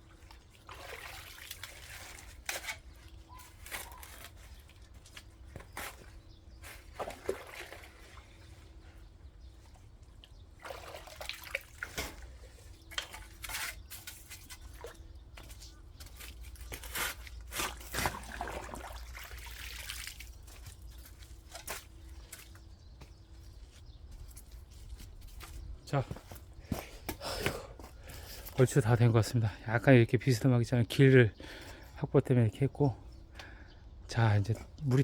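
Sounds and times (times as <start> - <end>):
water trickling into soil: 0.0 - 8.8, 9.6 - 22.7.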